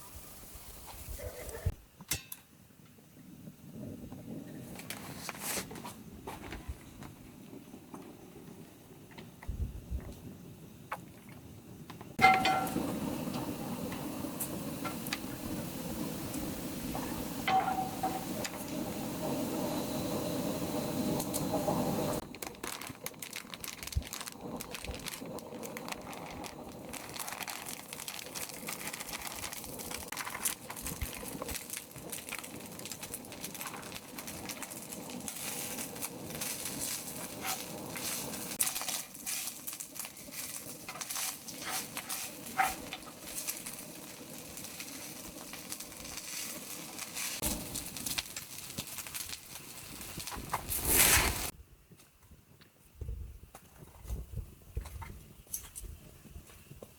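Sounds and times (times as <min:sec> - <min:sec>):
short crackles and clicks: 0:21.2 - 0:51.5.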